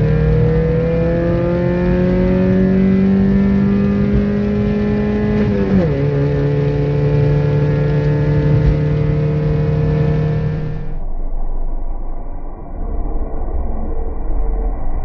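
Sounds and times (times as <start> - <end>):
car engine accelerating at high revs: 0.0 - 11.0.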